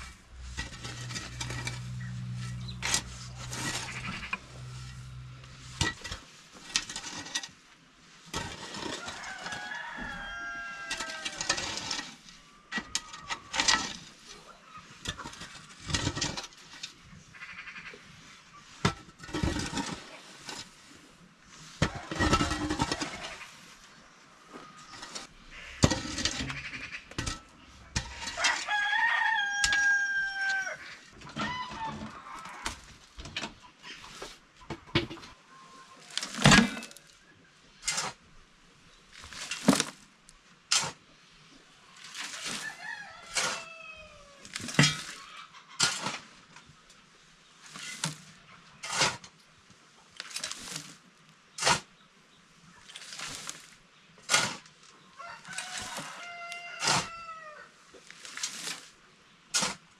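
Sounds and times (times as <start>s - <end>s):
rooster crowing: 9.0s - 11.6s, 28.2s - 30.8s, 55.2s - 57.7s.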